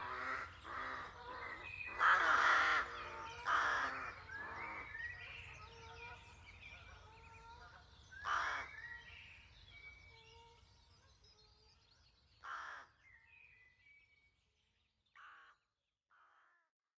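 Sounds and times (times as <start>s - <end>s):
rooks cawing: 0.0s - 4.2s
thin whistled bird song: 4.1s - 12.4s, 13.0s - 15.2s.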